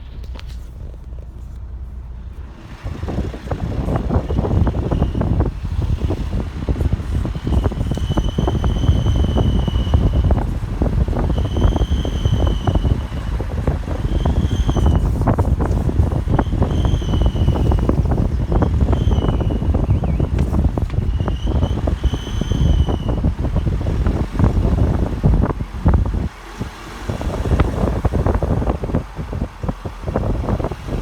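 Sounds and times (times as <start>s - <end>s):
road and wind noise: 0.0s - 31.0s.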